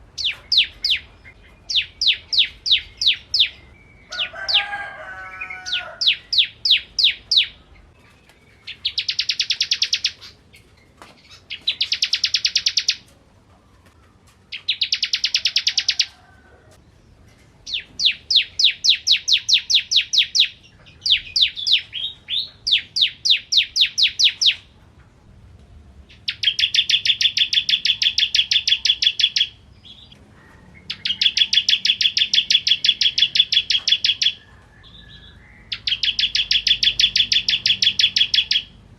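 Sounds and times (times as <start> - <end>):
bird singing high sharp notes: 30.9 - 38.8.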